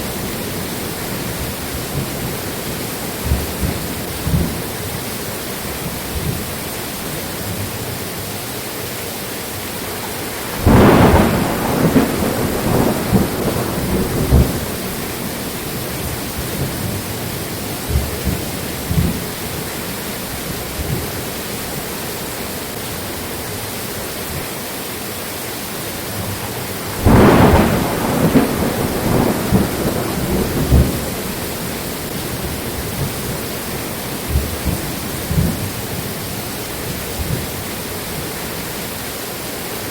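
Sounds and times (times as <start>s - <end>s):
rolling thunderclaps: 0.0s - 5.0s, 10.1s - 19.8s, 26.4s - 38.3s
steady rain: 0.0s - 39.9s.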